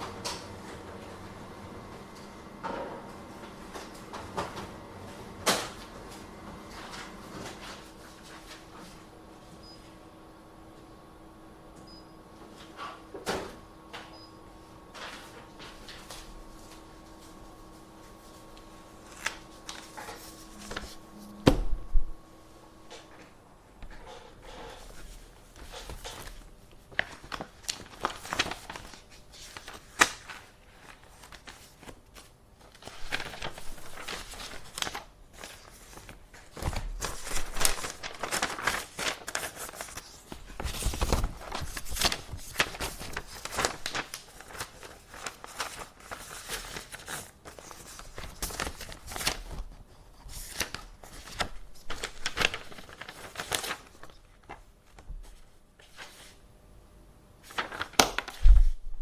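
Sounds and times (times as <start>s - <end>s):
paper rustling and crinkling: 5.4s - 9.1s, 14.9s - 21.6s, 22.9s - 56.4s, 57.4s - 59.0s.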